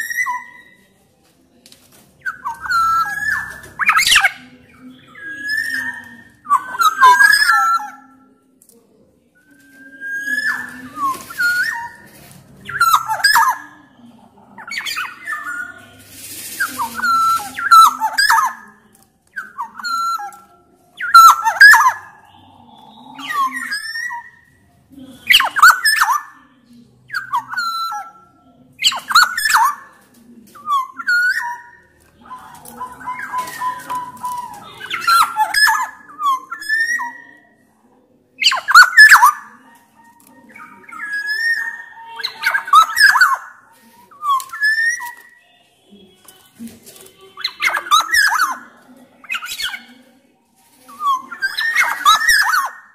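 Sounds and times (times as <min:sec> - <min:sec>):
harsh rasping bird calls: 0:01.9 - 0:08.2, 0:09.6 - 0:37.6, 0:38.4 - 0:50.0, 0:50.6 - 0:52.9
bird whistling: 0:02.2 - 0:04.4, 0:05.1 - 0:08.0, 0:09.6 - 0:13.7, 0:21.0 - 0:22.0, 0:30.6 - 0:37.4, 0:38.4 - 0:39.4, 0:40.4 - 0:43.5, 0:44.1 - 0:45.6, 0:47.3 - 0:49.9.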